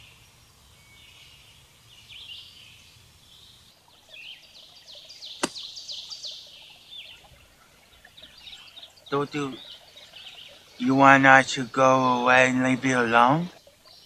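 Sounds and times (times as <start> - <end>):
faint steady hiss: 0.0 - 14.0
songbirds chirping: 0.0 - 14.0
sharp click: 5.4 - 5.6.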